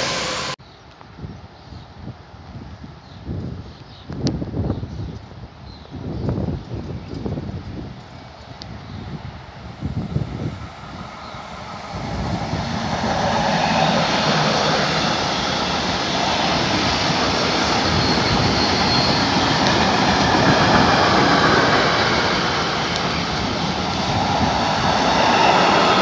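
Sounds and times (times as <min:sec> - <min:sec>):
freight train wagons rumbling: 0:11.4 - 0:26.0.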